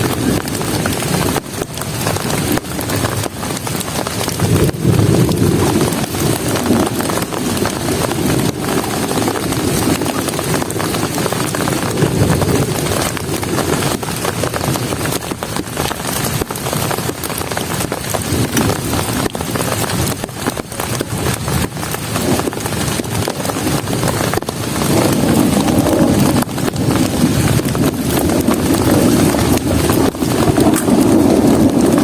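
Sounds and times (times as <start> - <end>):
heavy rain on a shelter: 0.0 - 32.0
low rumble: 4.2 - 15.1, 23.8 - 32.0.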